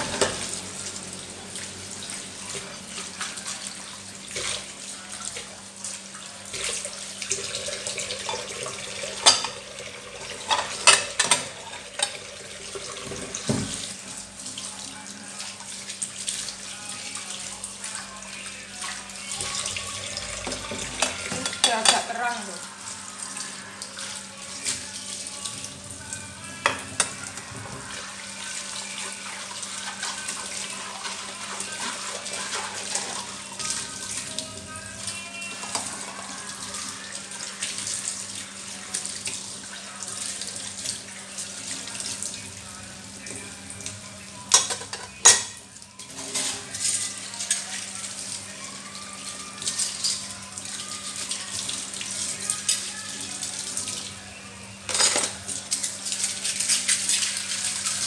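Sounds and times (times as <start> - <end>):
tap water running into sink: 0.0 - 14.6, 19.2 - 22.6, 26.6 - 34.6
dishes clinking: 9.2 - 9.6, 10.3 - 12.2, 44.5 - 45.6, 54.9 - 55.4.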